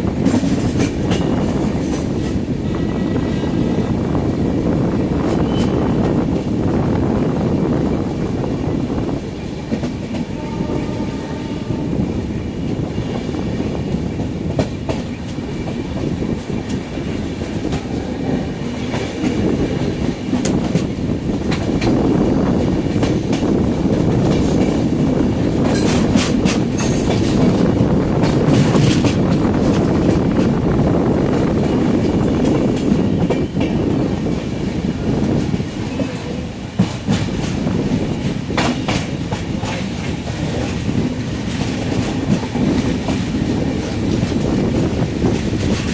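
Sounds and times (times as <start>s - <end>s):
train rumbling on track: 0.0s - 45.9s
wheels clicking over rail joints: 22.8s - 30.6s.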